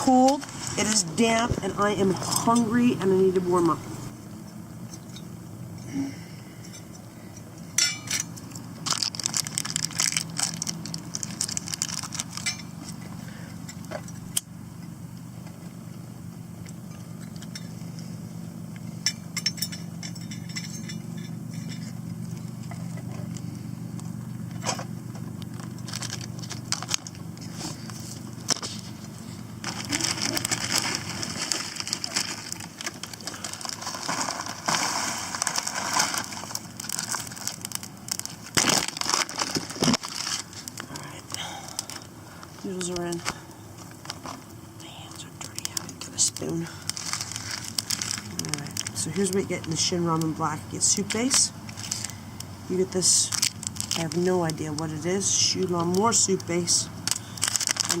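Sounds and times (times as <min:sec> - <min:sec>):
crackling and rustling: 0:00.0 - 0:06.0, 0:06.8 - 0:58.0
steady low hum: 0:00.0 - 0:58.0.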